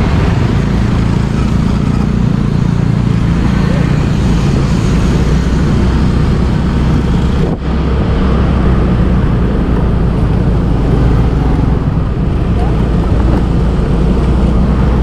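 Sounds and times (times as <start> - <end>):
motorbike engine running: 0.0 - 7.7
road noise: 0.0 - 15.0
wind noise: 0.0 - 15.0.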